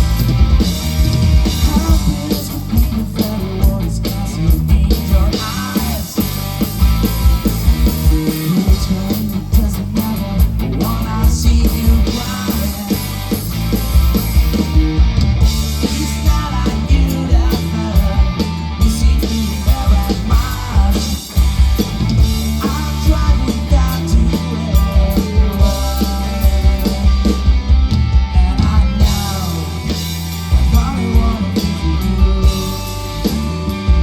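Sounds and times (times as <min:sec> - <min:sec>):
gliding lead guitar lines: 0:00.0 - 0:03.6
rock band playing instrumental: 0:00.0 - 0:34.0.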